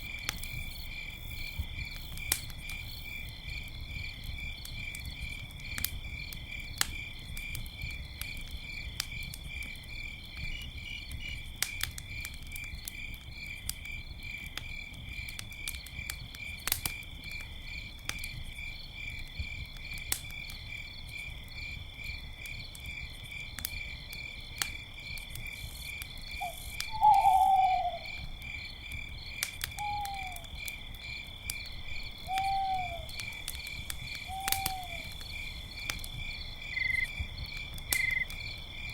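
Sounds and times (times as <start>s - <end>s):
crickets chirping: 0.0s - 16.5s, 17.3s - 38.9s
campfire crackling and popping: 0.0s - 38.9s
owl hooting: 26.4s - 28.2s, 29.8s - 30.5s, 32.2s - 33.1s, 34.3s - 35.2s.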